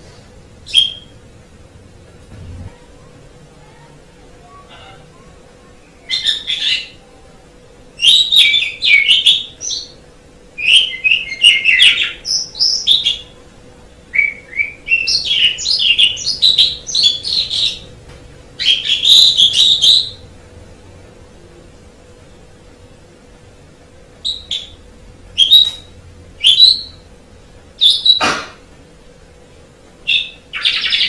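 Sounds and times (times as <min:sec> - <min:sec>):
faint steady hum: 0:00.0 - 0:31.0
starling singing: 0:00.6 - 0:01.2, 0:05.8 - 0:07.1, 0:10.6 - 0:13.4, 0:14.1 - 0:17.9, 0:18.6 - 0:20.3, 0:30.1 - 0:31.0.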